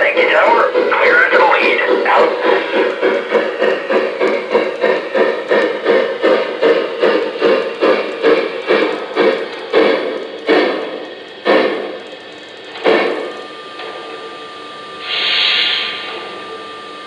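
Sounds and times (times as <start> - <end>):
steam hiss: 0.0 - 11.8, 15.0 - 16.6
model steam locomotive chuffing: 0.0 - 17.0.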